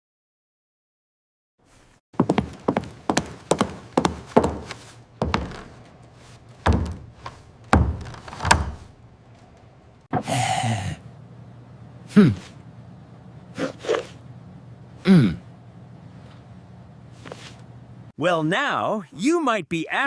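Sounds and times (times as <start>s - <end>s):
hard knocks and thuds: 6.6s - 8.9s.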